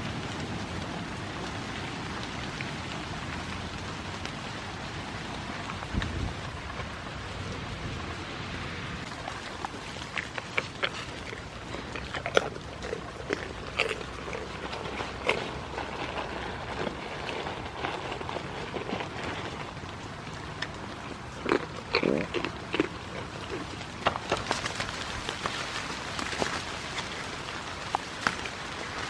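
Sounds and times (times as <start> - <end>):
rain falling on grass: 0.0 - 29.0
goat tearing grass: 9.0 - 19.8, 21.4 - 29.0.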